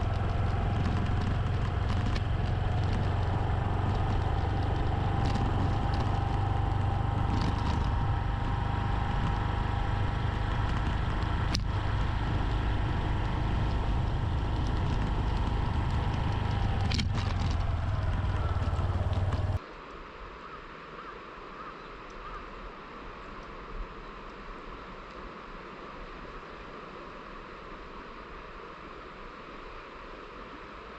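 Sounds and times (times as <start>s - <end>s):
small motorcycle engine droning: 0.0s - 19.6s.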